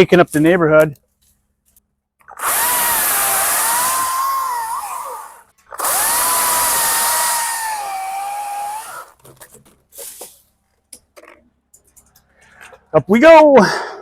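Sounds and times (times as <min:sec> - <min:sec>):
electric chainsaw whining: 0:02.3 - 0:09.2.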